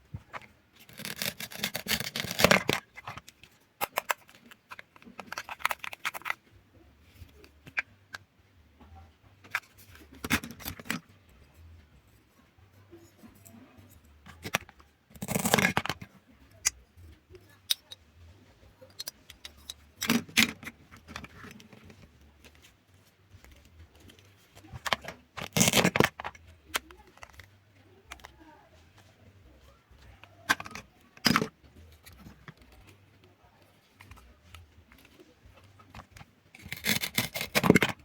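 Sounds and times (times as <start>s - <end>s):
food being cut by hand: 0.9s - 2.8s, 36.6s - 38.0s.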